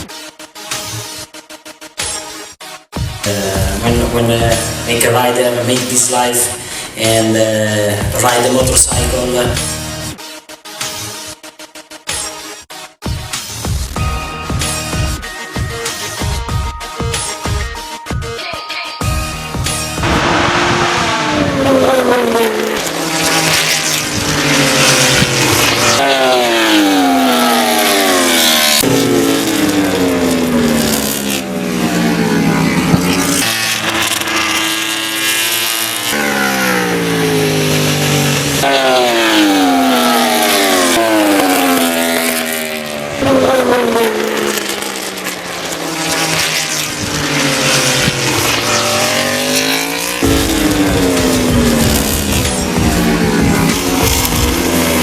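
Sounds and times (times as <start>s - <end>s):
racing motorcycle engines revving: 3.0s - 10.2s, 19.0s - 55.0s.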